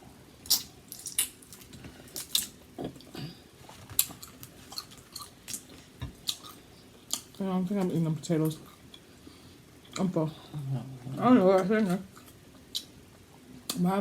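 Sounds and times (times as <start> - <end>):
person chewing: 0.4 - 7.4.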